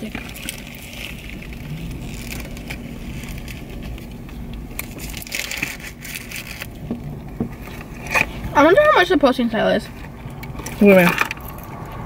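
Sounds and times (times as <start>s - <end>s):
chewing and biting burgers: 0.0s - 8.4s
steady low hum: 0.0s - 12.0s.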